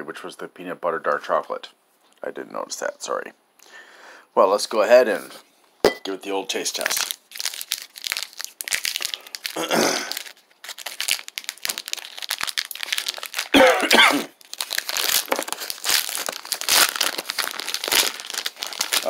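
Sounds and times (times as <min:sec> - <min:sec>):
plastic wrapper crinkling and tearing: 0:06.5 - 0:13.7, 0:14.3 - 0:19.0.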